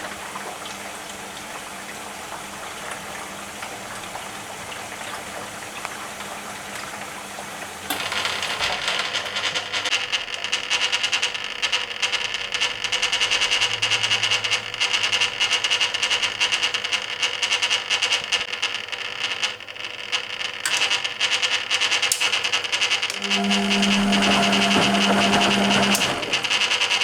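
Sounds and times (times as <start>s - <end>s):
washing machine drum turning: 0.0s - 9.9s, 23.1s - 27.0s.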